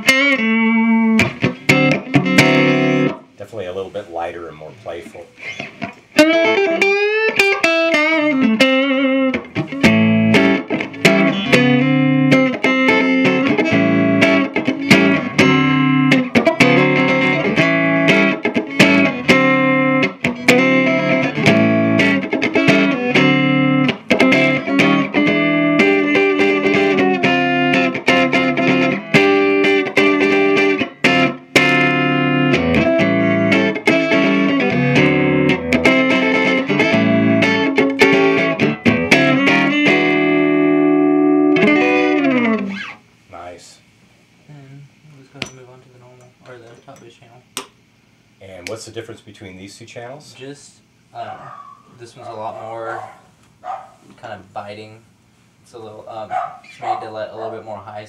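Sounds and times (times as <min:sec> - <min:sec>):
electric guitar playing: 0:00.0 - 0:03.4, 0:05.3 - 0:43.0.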